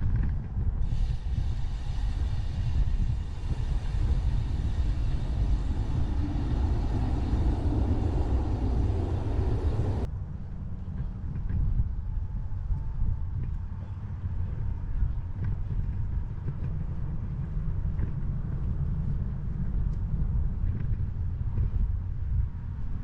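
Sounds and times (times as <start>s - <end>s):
wind rumble on microphone: 0.0s - 23.0s
broad rushing noise: 0.8s - 10.1s.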